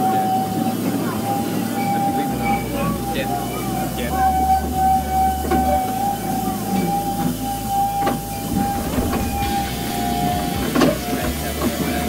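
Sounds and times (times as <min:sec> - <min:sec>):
high-pitched squeal: 0:01.8 - 0:12.0
train wheels rumbling: 0:04.6 - 0:12.0.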